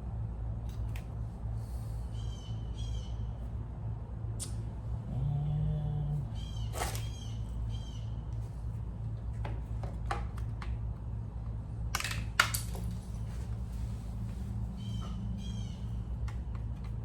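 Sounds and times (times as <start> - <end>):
steady low hum: 0.0 - 17.0
engine parts clicking and knocking: 9.1 - 13.7, 14.8 - 17.0.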